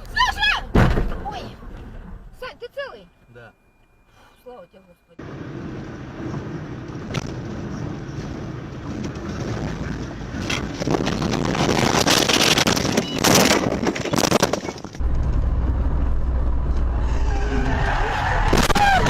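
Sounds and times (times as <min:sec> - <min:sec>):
car road and wind noise: 0:05.2 - 0:19.0.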